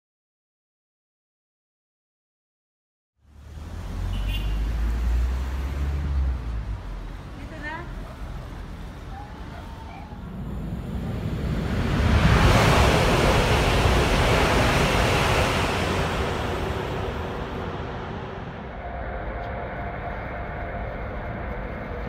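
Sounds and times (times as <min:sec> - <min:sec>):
train rushing noise: 0:04.9 - 0:22.0.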